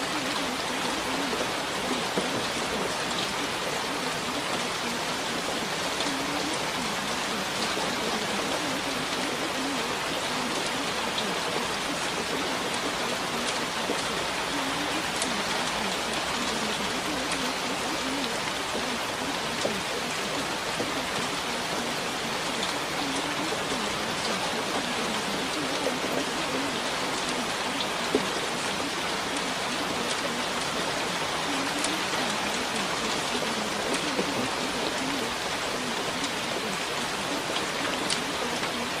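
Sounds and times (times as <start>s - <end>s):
raindrops ticking: 0.0s - 39.0s
steady rain hissing: 0.0s - 39.0s.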